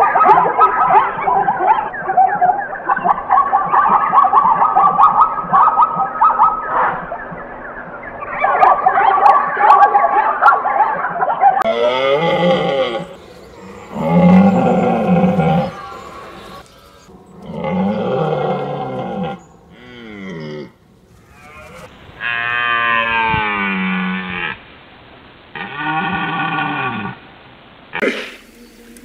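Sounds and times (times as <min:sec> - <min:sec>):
zebra call: 0:08.2 - 0:24.6, 0:25.5 - 0:27.2, 0:27.9 - 0:29.0
red deer stag roaring: 0:11.6 - 0:24.6, 0:25.6 - 0:27.2.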